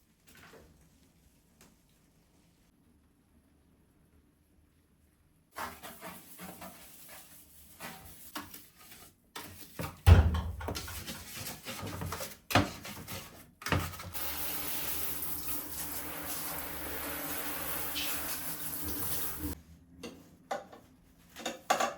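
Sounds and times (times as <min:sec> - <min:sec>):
tap running into sink: 0:14.2 - 0:19.6.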